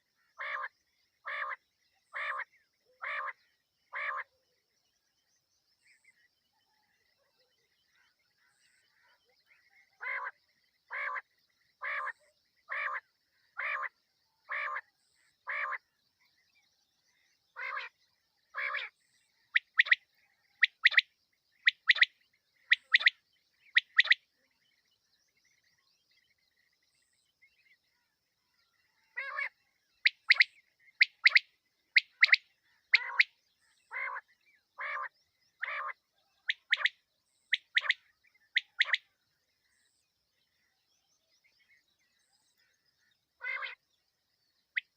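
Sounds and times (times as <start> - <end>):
quail calling: 0.0 - 4.3, 10.0 - 11.2, 11.8 - 13.0, 13.6 - 13.9, 14.5 - 14.8, 15.5 - 15.8, 17.6 - 17.9, 18.5 - 18.9, 19.5 - 20.0, 21.6 - 22.1, 22.7 - 24.2, 29.2 - 31.4, 32.0 - 33.3, 33.9 - 34.2, 34.8 - 38.0, 38.6 - 39.0, 43.4 - 43.8.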